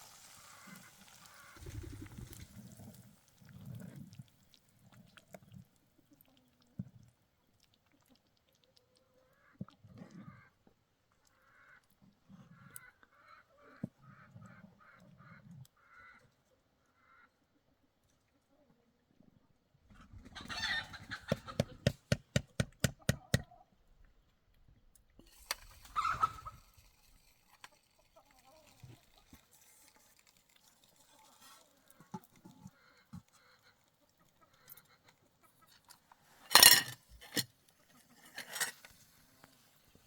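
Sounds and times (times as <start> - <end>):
loud fowl calls: 20.4 - 21.7
fowl clucking: 20.4 - 21.9.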